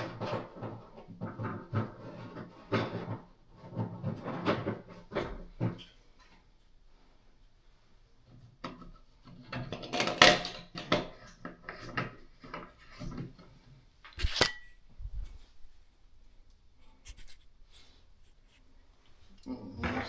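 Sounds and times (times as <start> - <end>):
metal plumbing parts clinking: 9.4 - 13.3.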